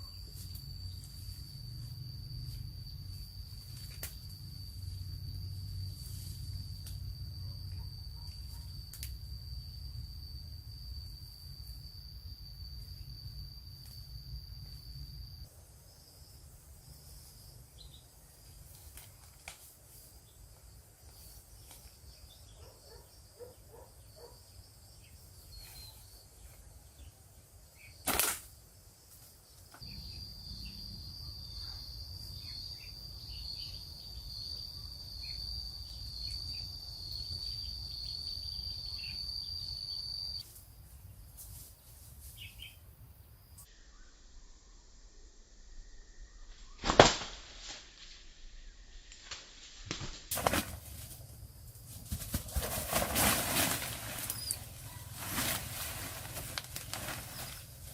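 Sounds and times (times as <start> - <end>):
sharp snap: 28.0 - 28.5, 46.8 - 47.8.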